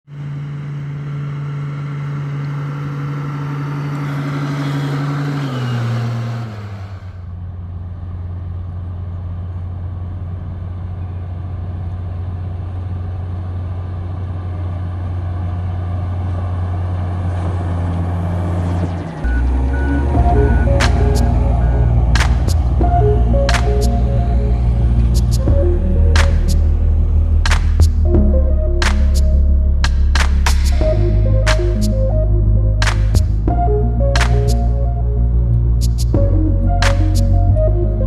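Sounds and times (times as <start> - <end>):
heavy diesel engine under load: 0.1 - 32.0.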